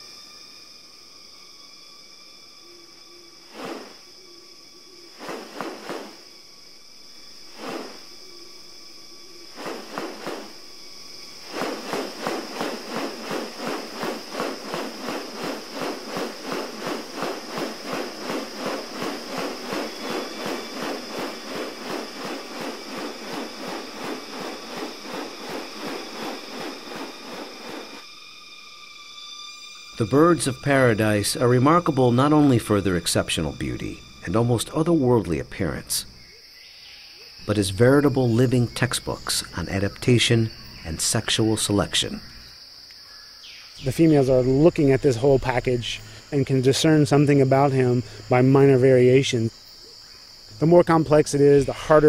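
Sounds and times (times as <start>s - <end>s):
high insect drone: 0.0s - 52.0s
rhythmic pulsing: 11.5s - 28.0s.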